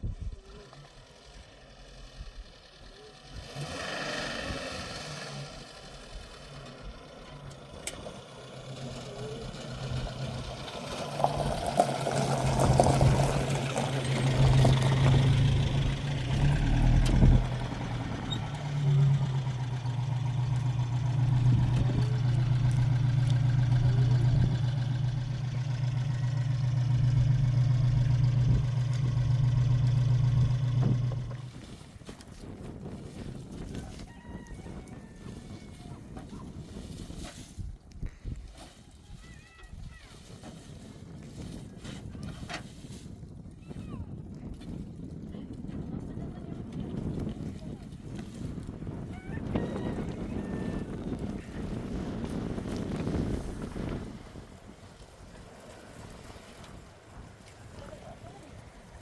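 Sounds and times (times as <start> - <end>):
engine running with low hum: 0.0 - 38.9, 39.9 - 59.0
clatter: 4.4 - 33.9.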